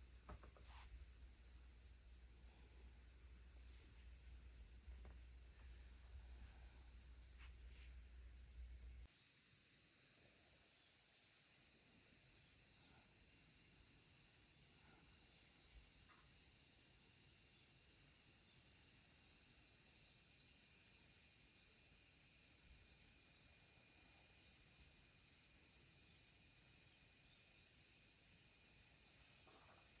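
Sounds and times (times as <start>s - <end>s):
insects trilling: 0.0s - 30.0s.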